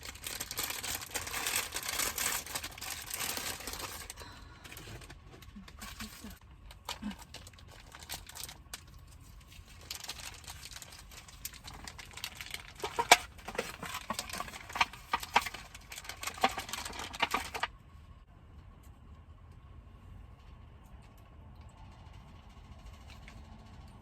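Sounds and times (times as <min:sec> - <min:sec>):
food packaging rustling: 0:00.0 - 0:17.7.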